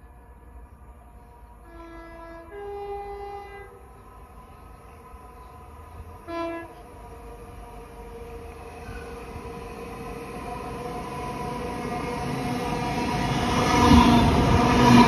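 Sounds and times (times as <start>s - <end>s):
train horn blasts: 1.6s - 3.9s, 6.2s - 6.9s.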